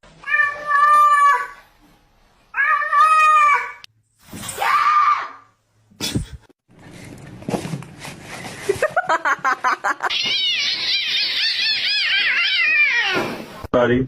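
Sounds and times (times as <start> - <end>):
cat meowing: 10.1 - 13.4.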